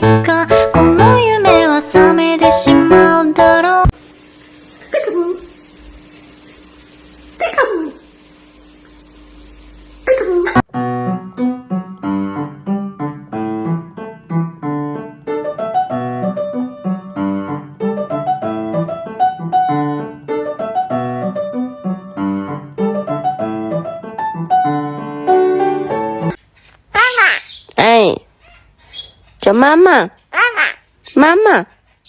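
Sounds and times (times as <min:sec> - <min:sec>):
piano music: 0:00.0 - 0:04.0, 0:10.6 - 0:26.4.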